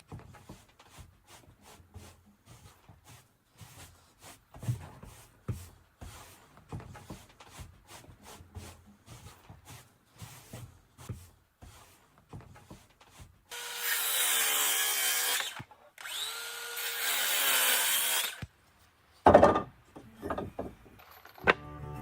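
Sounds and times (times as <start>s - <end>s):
wood rubbing scrapes: 0.0s - 13.5s.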